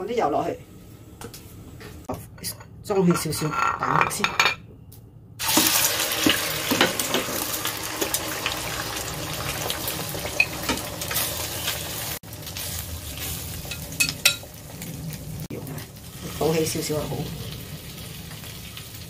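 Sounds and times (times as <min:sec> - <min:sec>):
tofu sizzling in hot oil: 0:05.4 - 0:15.3, 0:16.0 - 0:19.0.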